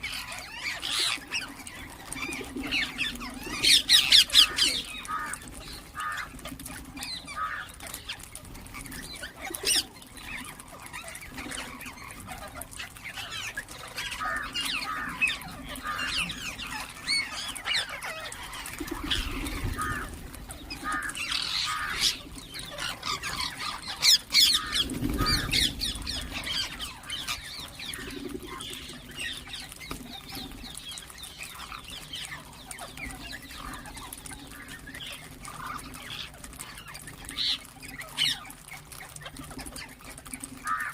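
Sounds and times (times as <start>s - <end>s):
parrots chirping and squawking: 0.0s - 40.9s.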